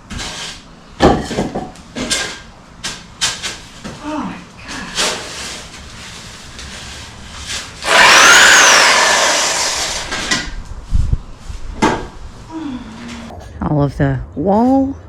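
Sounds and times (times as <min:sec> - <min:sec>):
loud scraping drag with squeal: 0:07.8 - 0:10.3.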